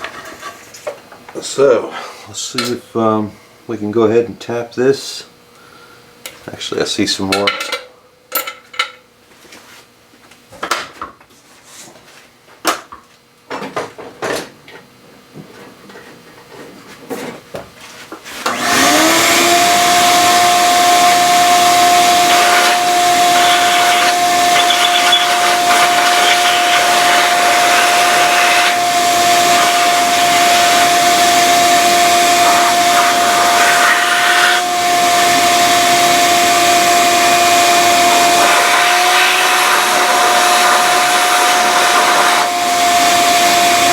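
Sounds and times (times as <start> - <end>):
shop vacuum running: 17.9 - 43.9.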